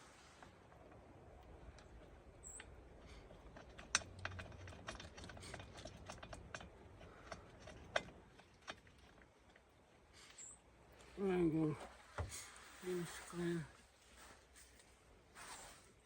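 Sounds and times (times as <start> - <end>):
tools and plastic parts clicking: 1.8 - 9.7.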